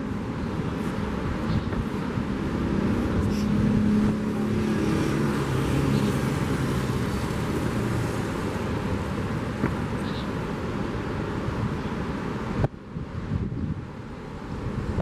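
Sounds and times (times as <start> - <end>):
wind: 0.0 - 15.0
vehicle engine passing: 2.1 - 9.4.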